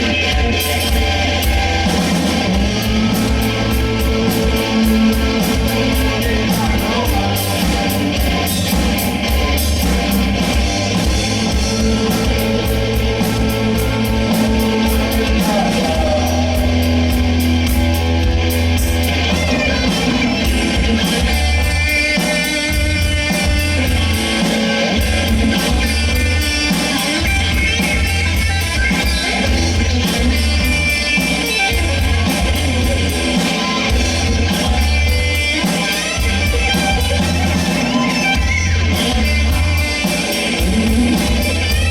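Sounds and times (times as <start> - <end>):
person singing: 0.0 - 10.5, 11.4 - 17.4
rock band playing: 0.0 - 41.9.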